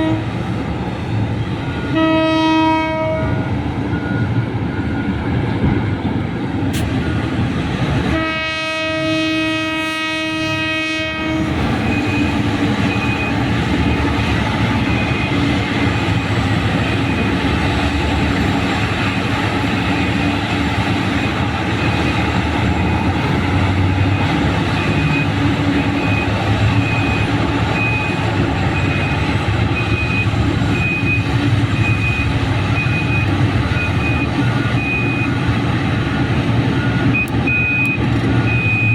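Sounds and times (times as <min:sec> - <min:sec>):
horn long blast: 0:00.0 - 0:00.4, 0:01.8 - 0:03.5, 0:08.1 - 0:11.6
heavy diesel machinery running: 0:00.0 - 0:38.9
reversing alarm beeping: 0:01.5 - 0:02.1, 0:03.3 - 0:05.9, 0:06.8 - 0:07.6, 0:11.2 - 0:38.9.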